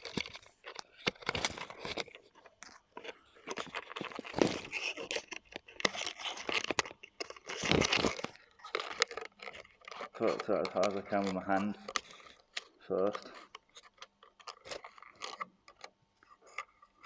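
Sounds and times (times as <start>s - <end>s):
wire scraping against heat wrap: 3.5s - 15.4s.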